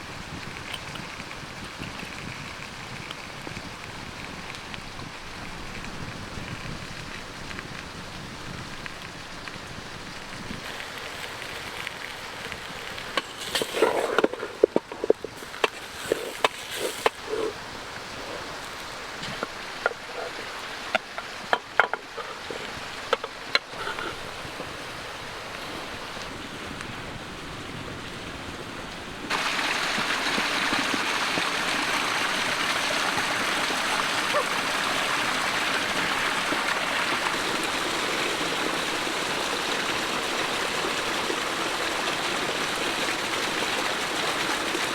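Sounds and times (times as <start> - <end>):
background hiss: 9.2 - 27.7
creek rushing: 10.6 - 27.4, 29.3 - 44.9.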